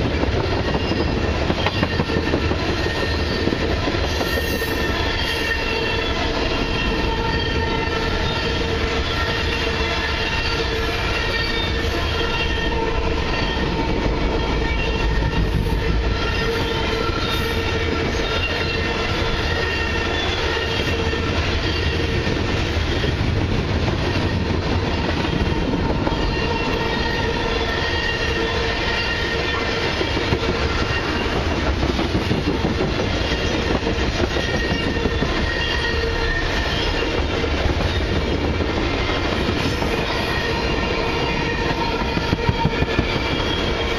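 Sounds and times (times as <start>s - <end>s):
freight train wheels rumbling: 0.0s - 43.9s
thin squealing tones: 33.4s - 37.1s.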